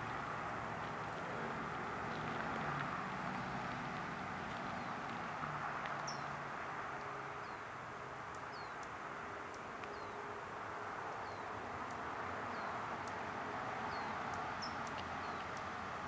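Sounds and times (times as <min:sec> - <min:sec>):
bird chirping: 0:06.0 - 0:06.4, 0:08.3 - 0:08.9, 0:13.9 - 0:15.7.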